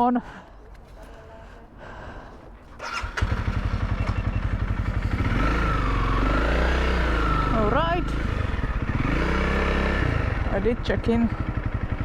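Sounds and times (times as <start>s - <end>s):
motorcycle engine starting and idling: 2.7s - 12.0s.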